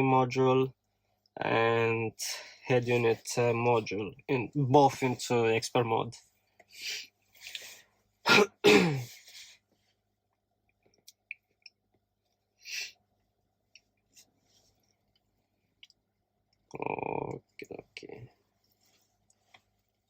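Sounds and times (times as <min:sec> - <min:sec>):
man coughing: 0:08.3 - 0:09.3.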